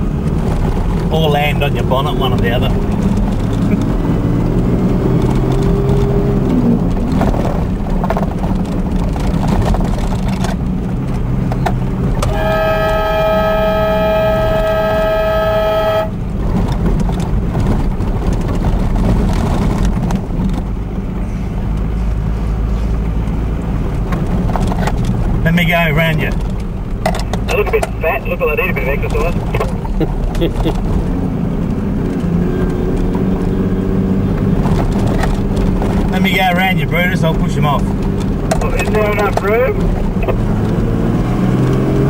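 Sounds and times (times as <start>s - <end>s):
vehicle engine and road rumble: 0.0s - 42.0s
car horn long blast: 12.2s - 16.2s.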